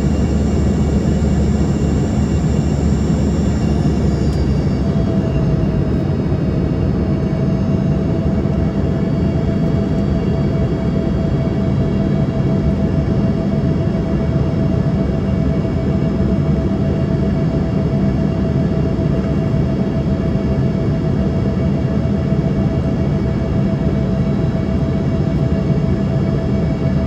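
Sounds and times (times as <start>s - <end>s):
steady whine: 0.0s - 19.4s
jet engine drone and airflow: 0.0s - 27.0s.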